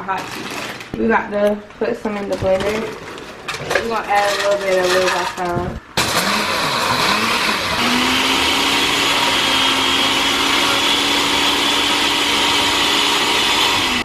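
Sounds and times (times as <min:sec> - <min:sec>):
blender motor grinding snacks: 0:06.0 - 0:14.0.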